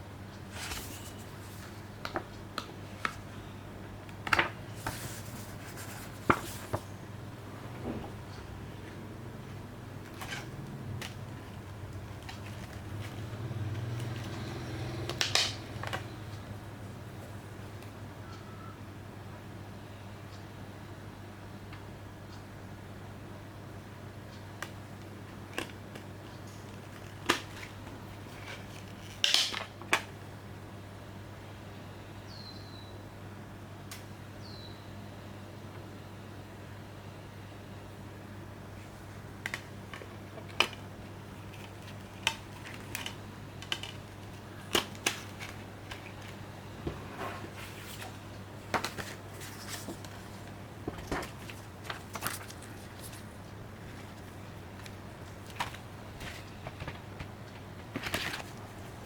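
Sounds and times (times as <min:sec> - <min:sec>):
steady low hum: 0:30.2 - 0:59.0
packaging rustle: 0:48.8 - 0:59.0.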